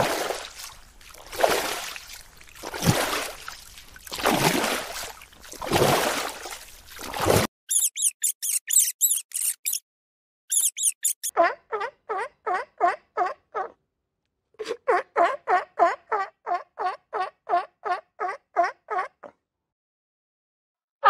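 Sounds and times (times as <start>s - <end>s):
water surging in swells: 0.0s - 7.5s
short high squeaks: 7.7s - 9.8s, 10.5s - 11.3s.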